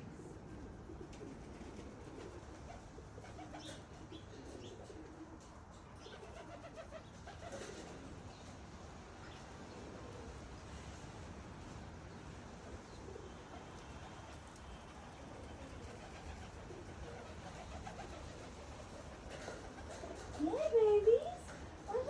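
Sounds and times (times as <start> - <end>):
pigeons cooing: 0.7 - 8.3, 12.6 - 20.7.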